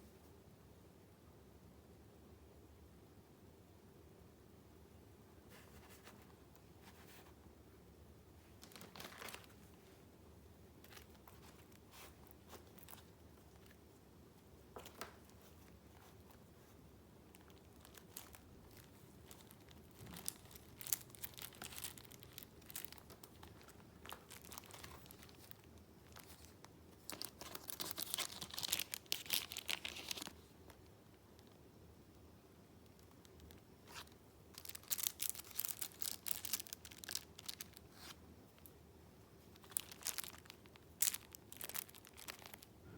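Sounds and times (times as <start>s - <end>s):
paper rustling: 8.5s - 10.0s, 10.8s - 13.8s, 17.4s - 30.8s.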